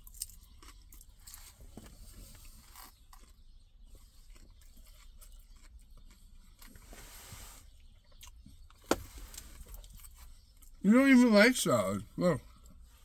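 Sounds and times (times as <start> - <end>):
person chewing lettuce: 0.0 - 7.2.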